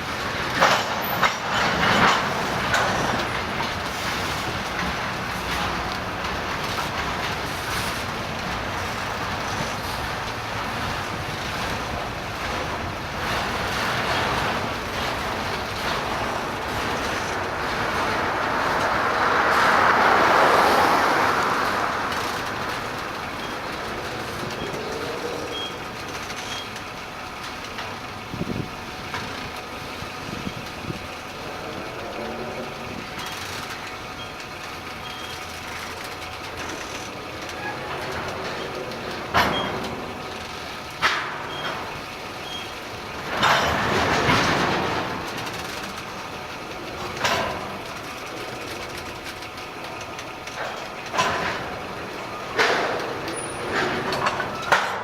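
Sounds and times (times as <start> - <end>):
train wheels rumbling on rail: 0.0 - 55.0
faint high beeps: 25.5 - 25.8.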